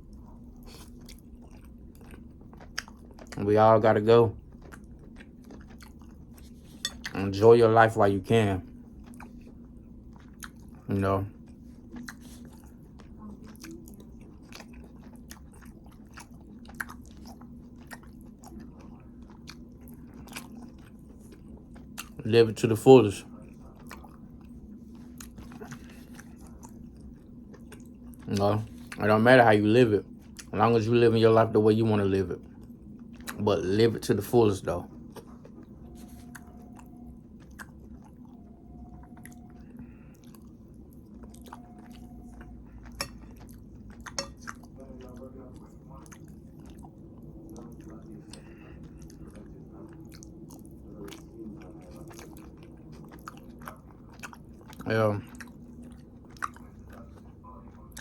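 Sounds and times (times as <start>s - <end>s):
person chewing food: 0.0s - 31.4s, 32.4s - 58.0s
faint steady hum: 0.0s - 58.0s.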